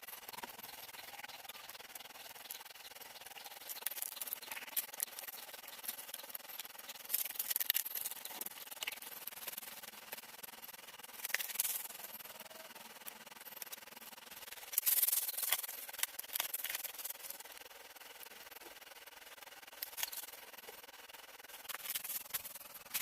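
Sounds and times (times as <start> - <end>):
rustling and scraping: 21.4 - 23.0.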